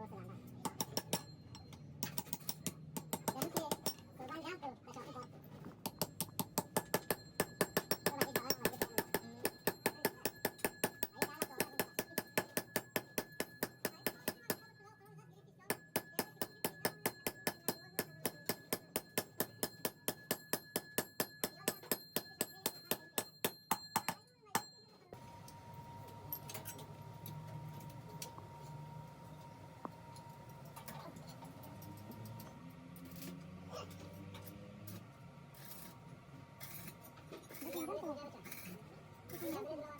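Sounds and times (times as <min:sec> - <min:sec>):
steady machine hum: 0:25.1 - 0:30.9.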